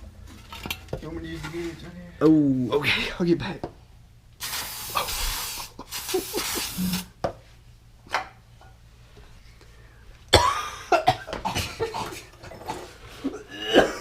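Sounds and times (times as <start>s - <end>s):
aerosol spray can hissing: 4.4s - 7.2s
person coughing: 10.3s - 12.2s, 13.3s - 14.0s.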